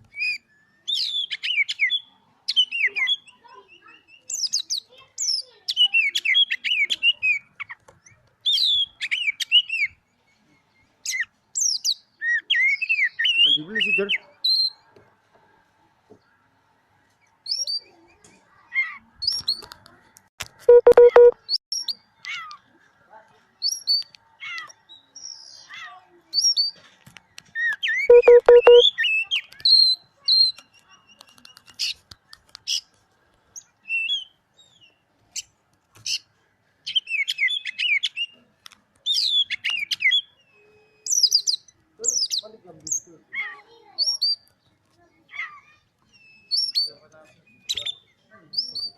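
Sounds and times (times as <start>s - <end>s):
bird singing: 27.5s - 31.7s, 36.2s - 43.1s
bird singing whistled notes: 39.1s - 42.4s, 46.1s - 48.9s.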